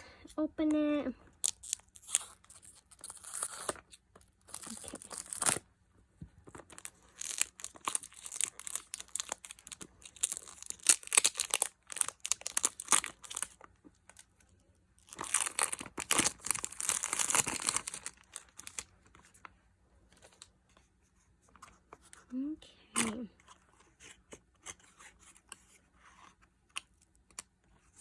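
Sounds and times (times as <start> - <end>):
packaging tearing and crinkling: 1.4 - 5.6, 6.5 - 14.2, 15.0 - 18.9.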